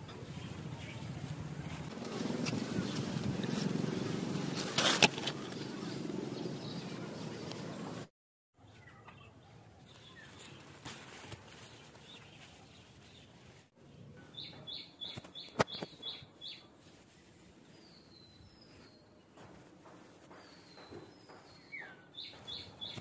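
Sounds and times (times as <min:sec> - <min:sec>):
birds chirping: 0:00.4 - 0:08.1, 0:20.2 - 0:23.0
pruning shears snipping stem: 0:04.5 - 0:05.9.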